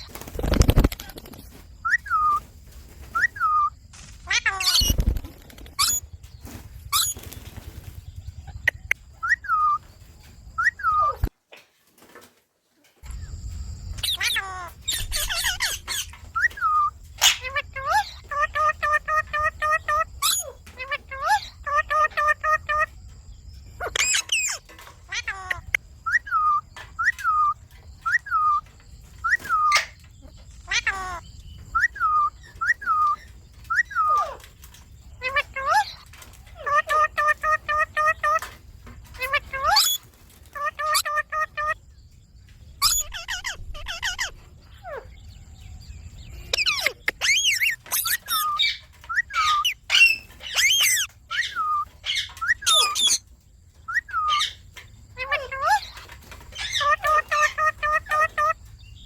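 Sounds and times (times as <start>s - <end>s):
parrot whistled calls: 1.8s - 2.4s, 3.1s - 4.9s, 8.7s - 9.8s, 14.0s - 22.8s, 25.2s - 30.0s, 30.6s - 34.4s, 46.5s - 53.2s, 53.8s - 54.6s
parakeet squawk: 3.5s - 5.0s, 14.0s - 16.1s, 23.8s - 25.7s, 30.6s - 31.2s, 39.2s - 40.0s, 40.6s - 41.8s, 42.8s - 45.0s, 46.5s - 53.2s, 56.6s - 58.6s.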